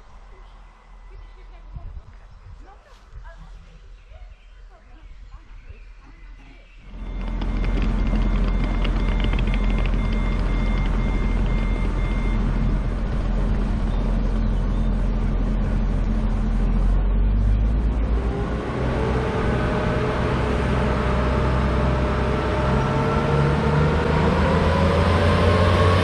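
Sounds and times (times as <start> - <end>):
high electronic beeping: 6.8 - 13.1
diesel railcar engines running: 6.8 - 26.0.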